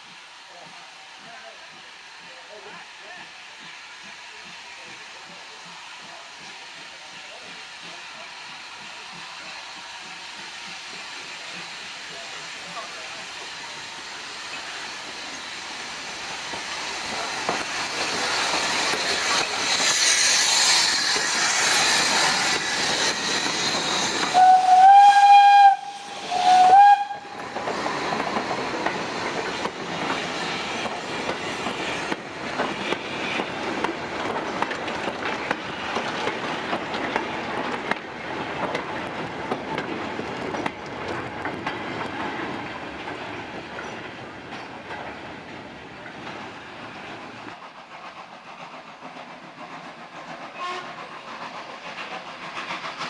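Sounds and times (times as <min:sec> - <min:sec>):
steam train running by: 0:00.0 - 0:53.0
train whistle blasts: 0:24.1 - 0:27.5, 0:50.6 - 0:51.0.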